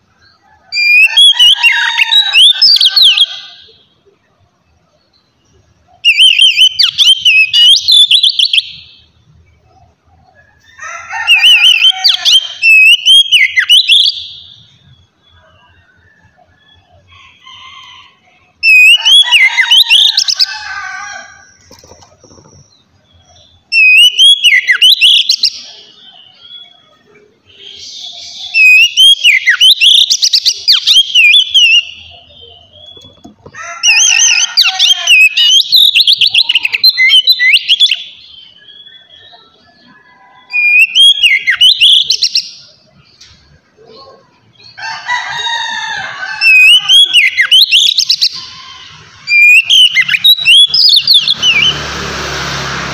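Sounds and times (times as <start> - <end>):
bird singing whistled phrases: 6.0 - 9.0, 11.3 - 15.4, 18.6 - 20.2, 23.4 - 26.9, 27.5 - 33.1, 33.9 - 39.7, 40.4 - 42.5, 46.4 - 48.5, 49.3 - 51.8.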